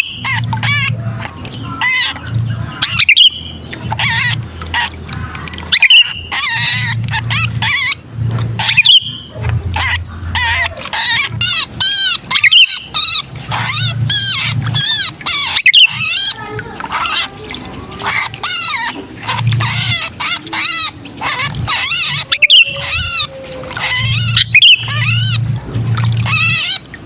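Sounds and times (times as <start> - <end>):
birds chattering and squealing: 0.0 - 27.0.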